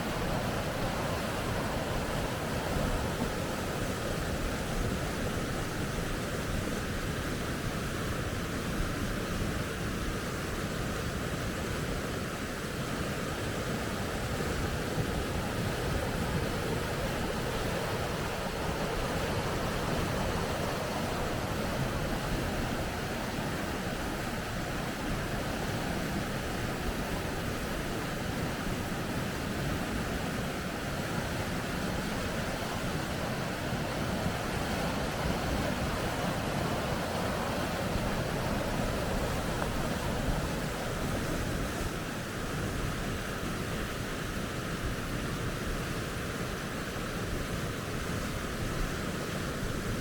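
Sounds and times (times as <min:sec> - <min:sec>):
rapids rushing: 0:00.0 - 0:06.0, 0:12.9 - 0:43.4.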